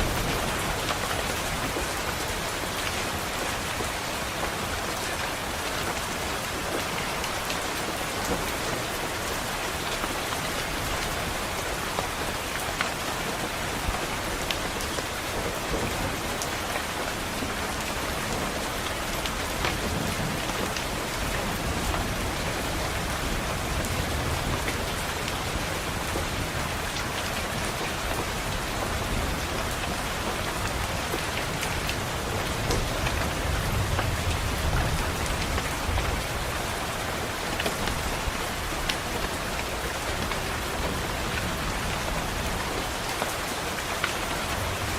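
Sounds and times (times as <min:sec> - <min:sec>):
steady rain: 0:00.0 - 0:44.9
raindrop ticks: 0:09.4 - 0:44.9.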